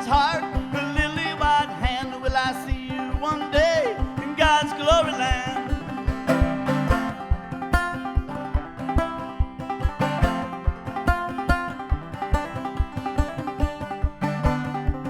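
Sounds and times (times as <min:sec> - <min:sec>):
banjo picking: 0:00.0 - 0:15.0
steady low beat: 0:00.0 - 0:15.0
bending lead melody: 0:05.0 - 0:15.0.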